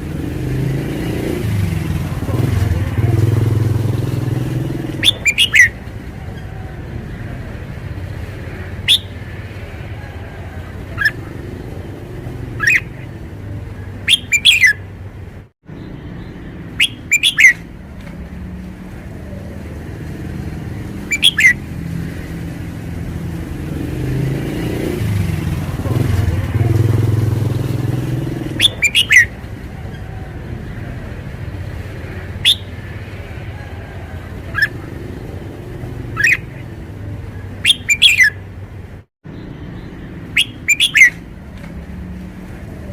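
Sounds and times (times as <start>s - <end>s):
bird calling sharply: 4.9s - 5.8s, 8.8s - 9.2s, 10.9s - 11.2s, 12.5s - 13.1s, 14.0s - 14.8s, 16.7s - 17.7s, 21.0s - 21.6s, 28.5s - 29.4s, 32.4s - 32.8s, 36.1s - 36.6s, 37.6s - 38.4s, 40.2s - 41.2s.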